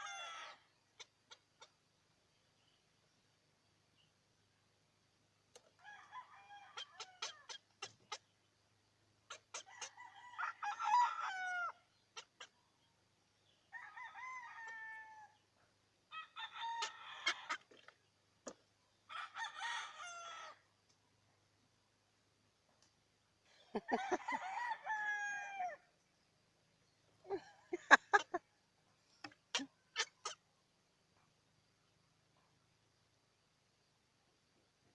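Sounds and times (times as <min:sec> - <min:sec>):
chickens calling: 0:06.5 - 0:08.3, 0:09.2 - 0:12.6.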